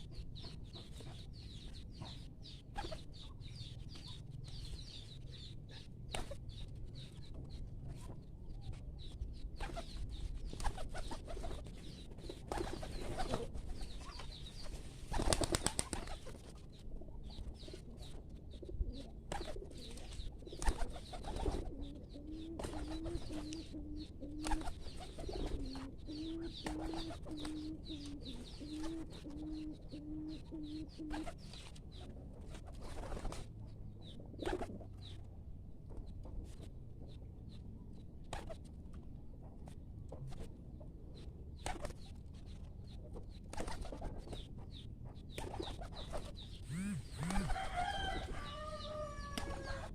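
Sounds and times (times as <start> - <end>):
wings flapping: 12.4 - 16.6, 19.3 - 21.7, 22.6 - 23.5, 24.4 - 25.8, 32.4 - 33.5, 41.6 - 42.0, 43.5 - 44.4, 45.4 - 48.2
pigeons cooing: 17.8 - 31.4, 45.4 - 49.9.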